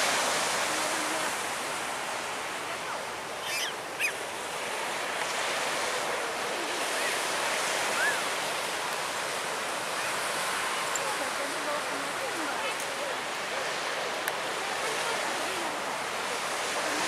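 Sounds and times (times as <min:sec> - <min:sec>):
surf rushing on a beach: 0:00.0 - 0:17.0
high chirps: 0:03.4 - 0:04.2.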